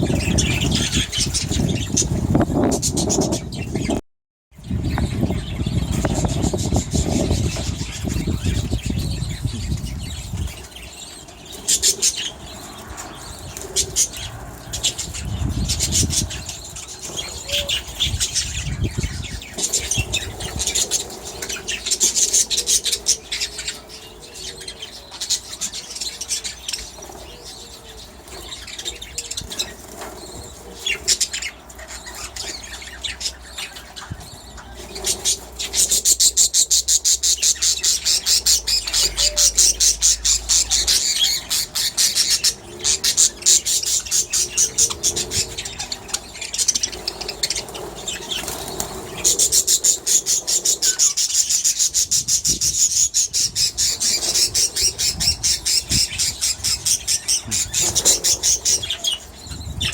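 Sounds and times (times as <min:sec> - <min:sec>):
budgerigars chirping: 0:04.8 - 0:59.9
budgerigars flapping wings: 0:46.8 - 0:51.1.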